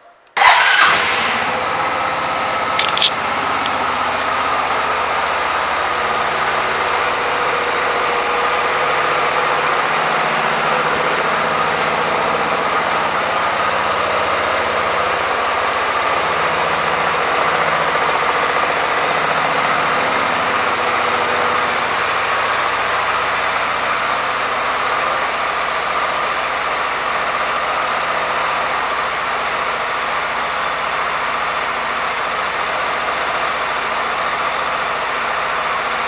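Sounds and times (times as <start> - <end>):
scooter engine idling: 0.0 - 36.0.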